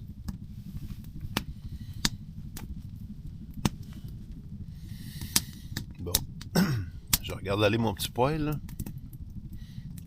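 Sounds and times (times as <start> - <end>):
stove burning rumble: 0.0 - 10.0
wood fire crackling and popping: 0.0 - 10.0.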